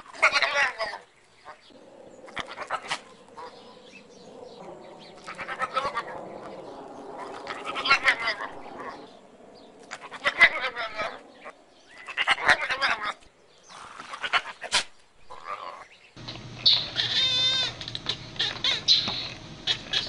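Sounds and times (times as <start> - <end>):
wavering animal cries: 5.2 - 6.2, 7.2 - 9.1, 9.9 - 11.2, 15.3 - 20.0.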